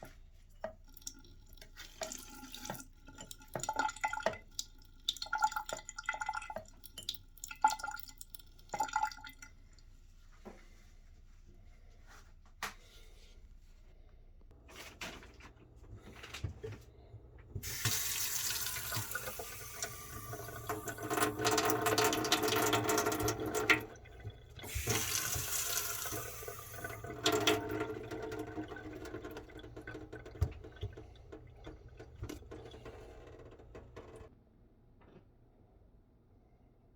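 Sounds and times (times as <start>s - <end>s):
tap water running into sink: 0.0s - 9.4s, 17.6s - 34.3s.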